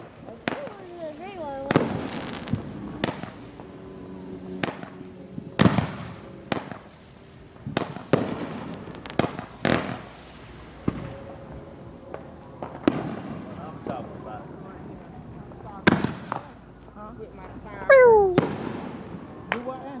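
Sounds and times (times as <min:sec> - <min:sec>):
fireworks crackling hiss: 0:00.0 - 0:20.0
fireworks bangs and pops: 0:01.6 - 0:03.4, 0:05.6 - 0:07.0, 0:07.6 - 0:10.2, 0:15.8 - 0:16.5.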